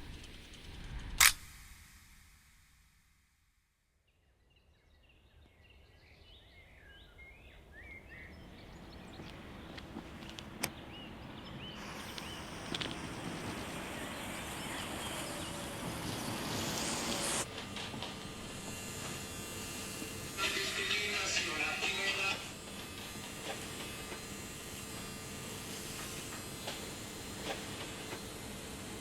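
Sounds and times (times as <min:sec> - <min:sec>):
birds chirping: 0:04.6 - 0:17.5, 0:19.2 - 0:28.0.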